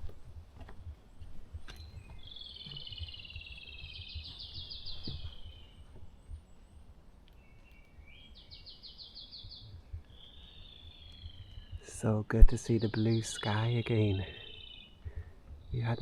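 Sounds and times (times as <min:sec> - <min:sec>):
songbird singing: 0:00.0 - 0:16.0
soft thuds: 0:03.8 - 0:06.1.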